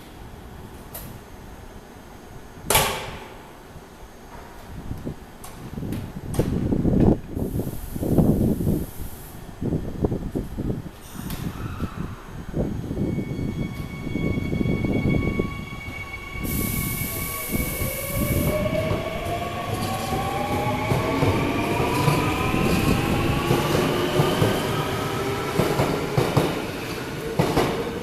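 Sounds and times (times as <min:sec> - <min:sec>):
air hiss: 0:07.4 - 0:09.6, 0:16.4 - 0:19.0.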